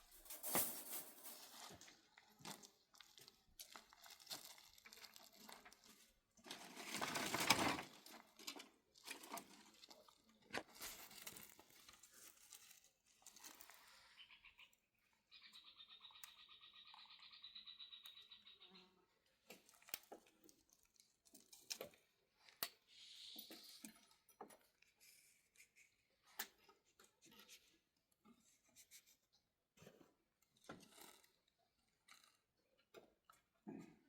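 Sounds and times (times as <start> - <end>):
soft rustle: 0.0 - 1.8.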